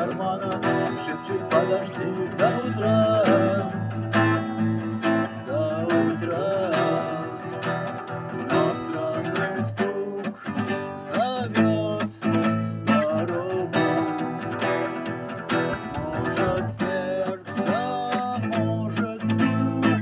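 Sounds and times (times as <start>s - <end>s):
strummed acoustic guitar: 0.0s - 20.0s
sliding melody line: 13.4s - 18.5s.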